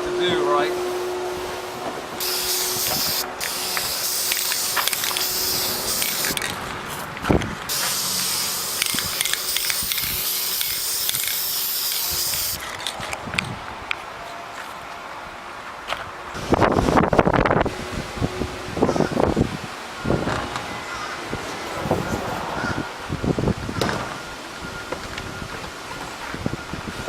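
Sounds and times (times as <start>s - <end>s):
spray paint can hissing: 2.2s - 6.6s, 7.7s - 13.0s.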